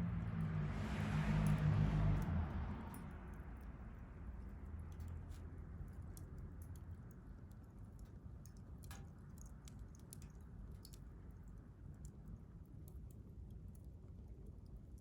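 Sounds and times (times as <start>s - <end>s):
wood fire crackling: 4.4s - 15.0s.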